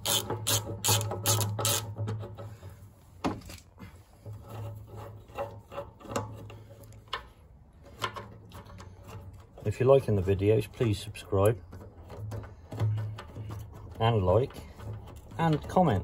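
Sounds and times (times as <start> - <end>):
hand ratchet clicking: 0.0 - 1.9
rubbing of parts: 0.0 - 16.0
light knocks and clicks of parts: 0.1 - 16.0.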